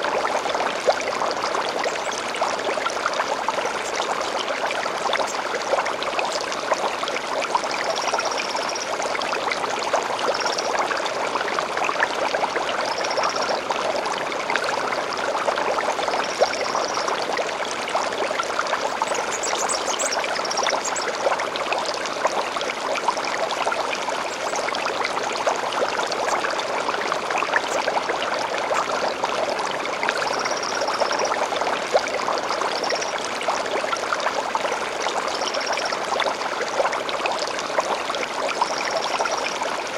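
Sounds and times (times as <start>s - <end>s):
stream flowing: 0.0s - 39.9s
birdsong: 19.2s - 21.1s.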